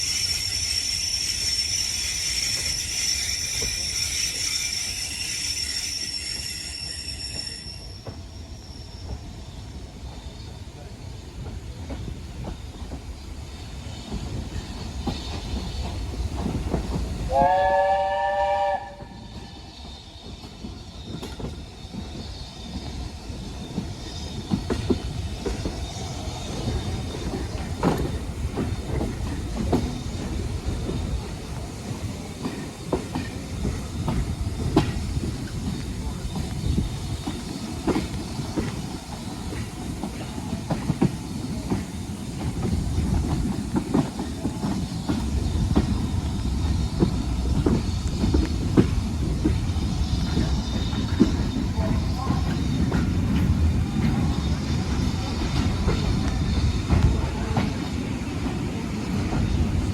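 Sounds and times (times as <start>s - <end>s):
steam locomotive whistle: 0.0s - 8.2s, 17.3s - 19.6s
steam train rumbling past: 0.0s - 59.9s.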